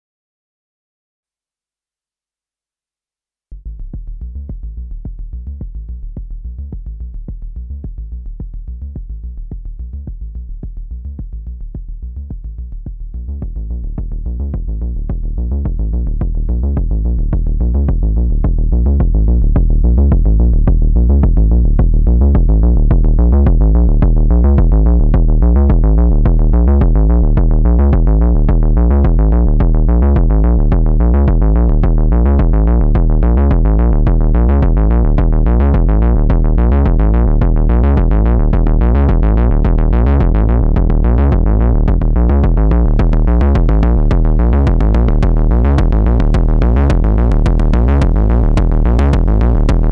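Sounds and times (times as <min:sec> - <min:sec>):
distorted electronic kick and bass loop: 0:03.5 - 0:49.9.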